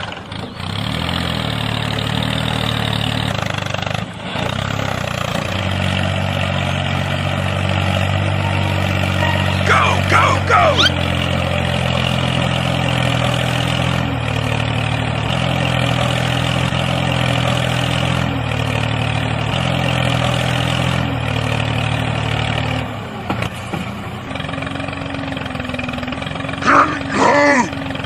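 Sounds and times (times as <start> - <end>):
tractor engine running: 0.0 - 28.0
high gliding cry: 8.1 - 11.2, 26.6 - 27.8.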